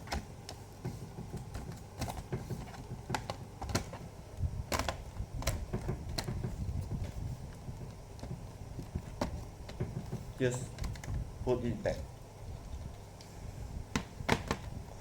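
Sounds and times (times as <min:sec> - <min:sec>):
plastic laptop casing clicking: 0:01.1 - 0:04.1, 0:04.7 - 0:06.6, 0:14.0 - 0:14.8.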